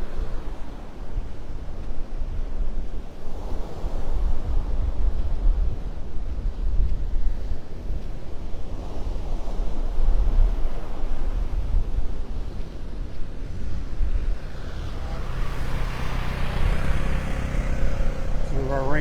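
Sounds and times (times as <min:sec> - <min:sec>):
wind rumbling on microphone: 0:00.0 - 0:19.0
vehicle engine approaching: 0:13.2 - 0:19.0.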